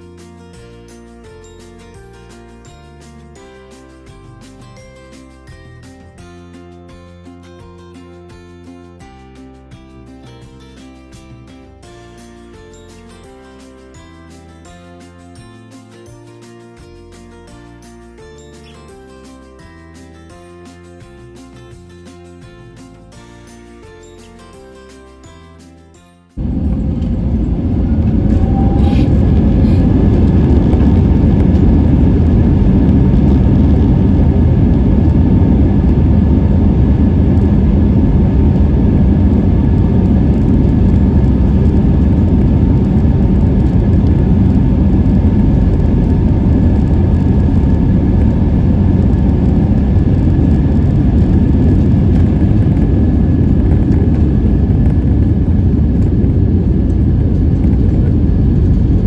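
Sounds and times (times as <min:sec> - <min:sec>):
faint steady whine: 0:26.4 - 0:59.0
jet engine roar in cabin: 0:26.4 - 0:59.0.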